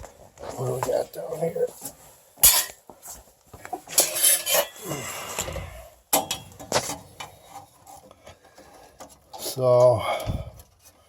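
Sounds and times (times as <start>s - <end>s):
metal clinking and scraping: 2.4s - 2.8s, 3.9s - 4.8s.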